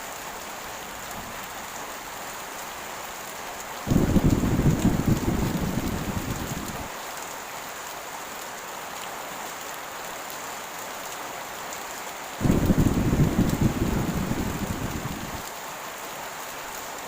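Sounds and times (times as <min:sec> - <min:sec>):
heavy rain hissing: 0:03.8 - 0:07.0, 0:12.4 - 0:15.9
low thunder rumble: 0:03.9 - 0:06.9, 0:12.4 - 0:15.4.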